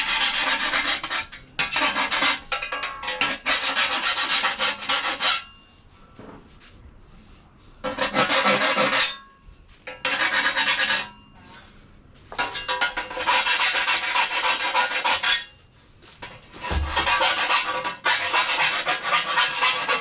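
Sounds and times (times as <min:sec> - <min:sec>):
hand file rasping on sheet steel: 0:00.0 - 0:02.6, 0:03.2 - 0:05.5, 0:07.8 - 0:09.2, 0:09.9 - 0:11.2, 0:12.7 - 0:15.6, 0:16.5 - 0:20.0.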